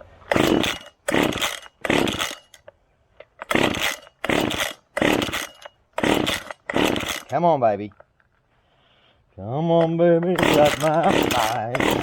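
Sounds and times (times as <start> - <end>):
engine cranking whirr: 0.0 - 2.7, 3.3 - 7.4, 9.8 - 12.0
chainsaw starter cord yanks: 0.2 - 8.2, 9.6 - 12.0.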